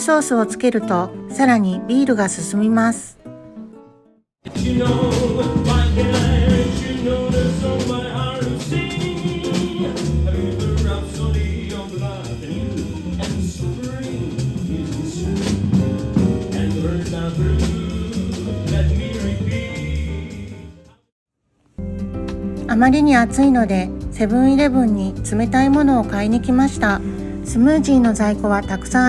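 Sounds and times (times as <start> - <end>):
drum kit: 4.4 - 20.9, 21.8 - 29.0
bass: 4.4 - 21.0, 21.7 - 29.0
person singing: 4.5 - 15.8, 16.4 - 20.8
live jazz band playing: 4.5 - 20.5.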